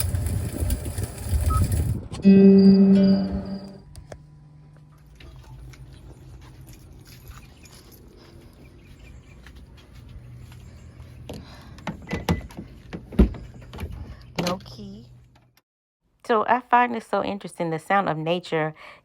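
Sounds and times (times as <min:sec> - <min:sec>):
low steady hum: 0:00.5 - 0:12.9.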